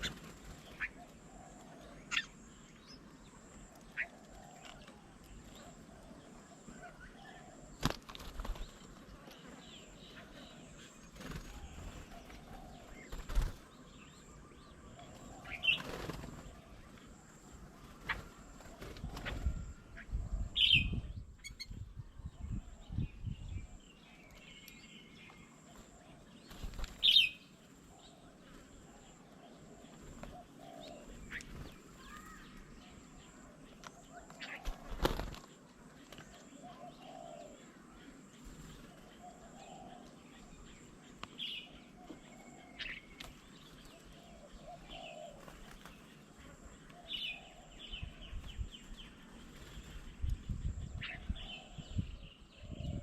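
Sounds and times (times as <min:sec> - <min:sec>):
birds flapping wings: 0:07.8 - 0:09.1, 0:11.0 - 0:13.7, 0:15.6 - 0:16.6, 0:26.5 - 0:27.2, 0:34.6 - 0:35.5, 0:45.4 - 0:46.1
sharp bird calls: 0:24.2 - 0:35.4.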